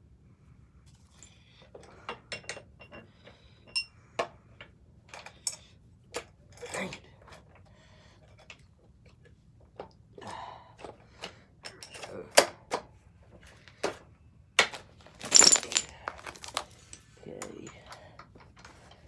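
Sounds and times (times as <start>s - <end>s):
metal tools clinking and knocking: 15.1s - 17.0s.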